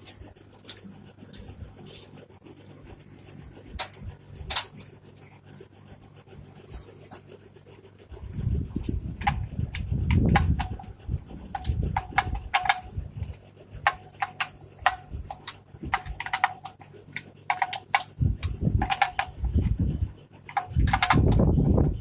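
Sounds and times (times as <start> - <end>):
low steady hum: 0.0 - 22.0
hard objects striking metal: 8.1 - 13.0, 20.5 - 21.6.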